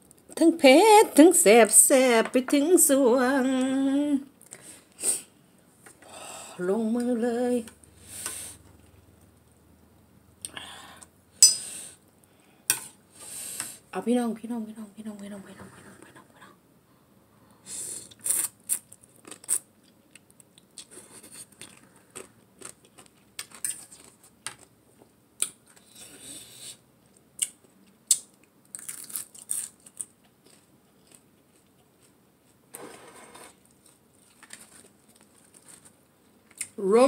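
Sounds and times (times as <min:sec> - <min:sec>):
person chewing food: 0:18.1 - 0:26.2, 0:27.1 - 0:32.6.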